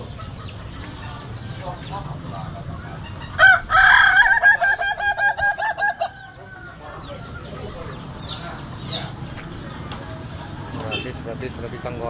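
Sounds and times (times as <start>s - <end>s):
rooster crowing: 3.3s - 6.8s.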